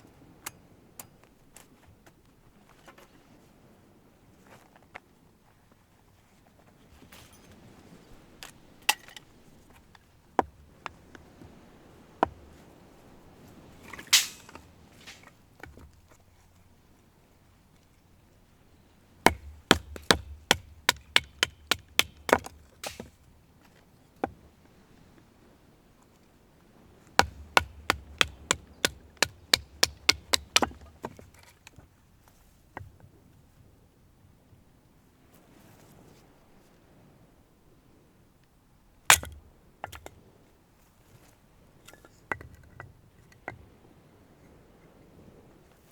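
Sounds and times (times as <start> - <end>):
hammer-like strikes: 14.1 - 15.2, 19.3 - 23.1, 27.2 - 30.9
hard objects knocking: 14.2 - 15.2, 19.3 - 23.1, 27.2 - 31.1.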